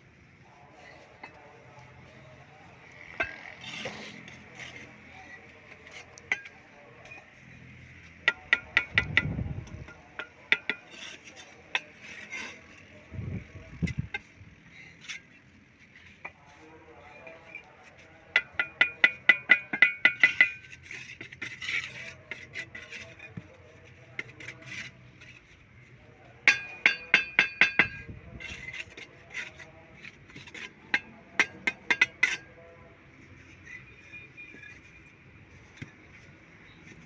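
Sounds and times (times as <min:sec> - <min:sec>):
metal tool tapping: 0:08.2 - 0:10.9, 0:18.4 - 0:21.4, 0:26.4 - 0:28.1, 0:30.4 - 0:32.5.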